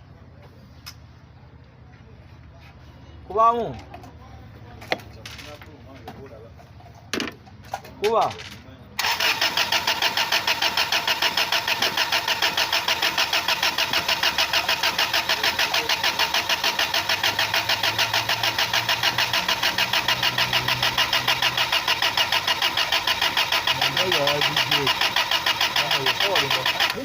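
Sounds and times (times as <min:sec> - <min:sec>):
engine cranking: 0:08.3 - 0:27.0
starter motor whine: 0:09.0 - 0:27.0.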